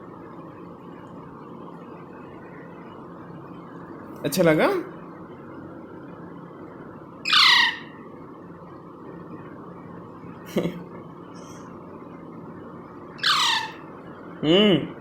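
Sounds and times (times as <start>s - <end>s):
parrot chick squawking: 7.2s - 8.0s, 13.2s - 13.9s.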